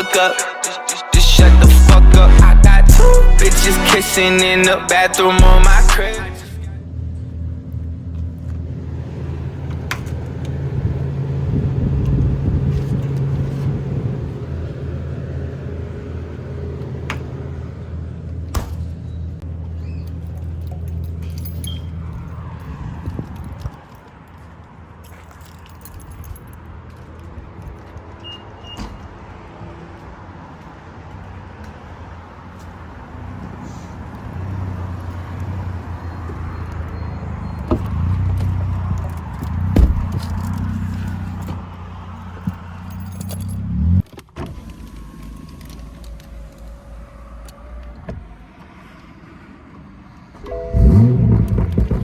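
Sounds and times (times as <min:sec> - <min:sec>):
car engine drone: 0:00.0 - 0:19.7, 0:33.2 - 0:52.0
light jingling rattle: 0:20.0 - 0:22.8, 0:42.2 - 0:43.7
exhaust pops: 0:51.0 - 0:52.0.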